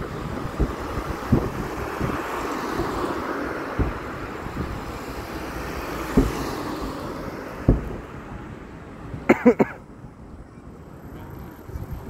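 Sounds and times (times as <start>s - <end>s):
fireworks booming: 0.0s - 8.5s
continuous low rumble: 0.0s - 12.0s.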